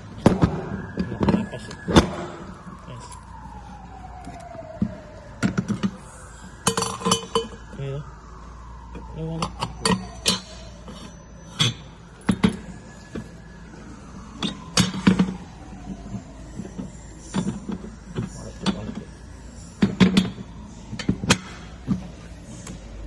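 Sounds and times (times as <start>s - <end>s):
metallic clinks of tools and parts: 6.6s - 7.7s, 9.4s - 12.7s.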